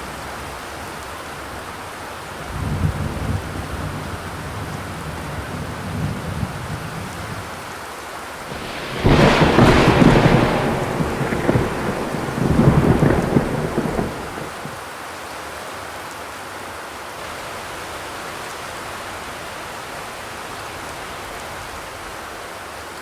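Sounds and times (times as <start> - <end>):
sudden loud rumbling surge: 8.5 - 14.6
rain drumming on metal roof: 8.5 - 14.8
low rumble: 8.6 - 14.6.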